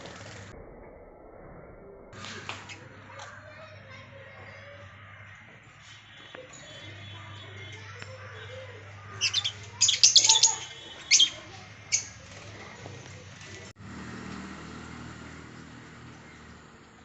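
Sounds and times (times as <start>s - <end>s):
pet birds chirping: 5.8s - 13.2s.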